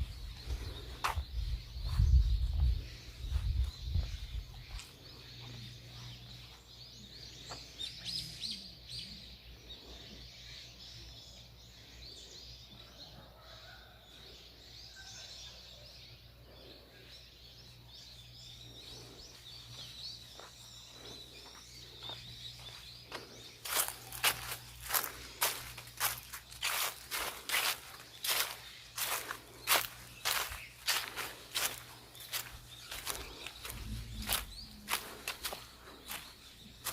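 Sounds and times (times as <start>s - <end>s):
small birds chirping: 0.0s - 36.9s
faint low hum: 15.8s - 36.9s.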